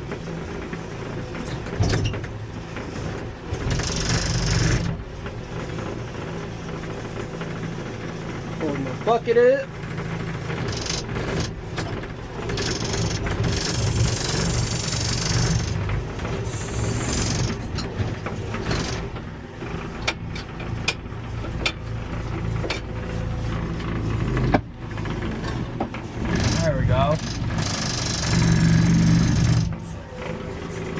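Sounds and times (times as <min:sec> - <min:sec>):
diesel engine running: 0:00.0 - 0:30.9
hydraulics hissing: 0:16.4 - 0:17.6.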